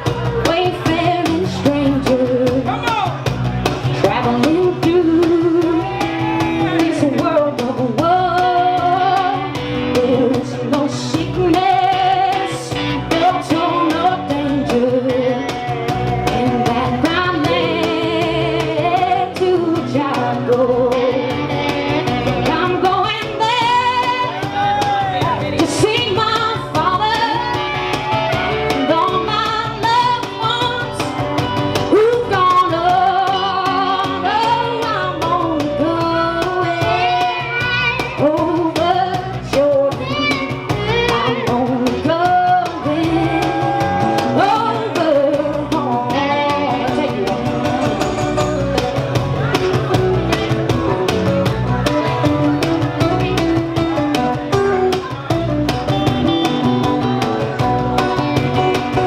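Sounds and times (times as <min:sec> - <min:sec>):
guitar accompaniment: 0:00.0 - 0:59.0
woman singing with vibrato: 0:00.4 - 0:02.7, 0:04.0 - 0:24.6, 0:25.6 - 0:31.2, 0:31.9 - 0:48.6.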